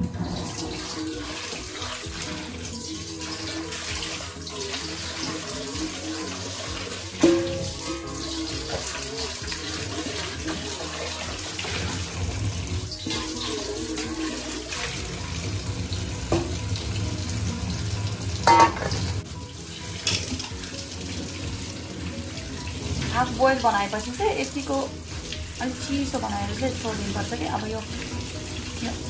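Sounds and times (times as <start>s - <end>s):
tap running into metal sink: 7.2s - 9.1s, 16.3s - 17.0s, 18.4s - 19.2s.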